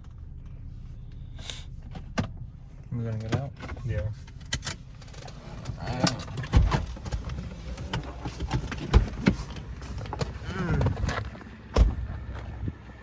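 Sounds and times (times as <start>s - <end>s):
low steady rumble: 0.0s - 13.0s
car door knocks and thumps: 5.6s - 12.1s.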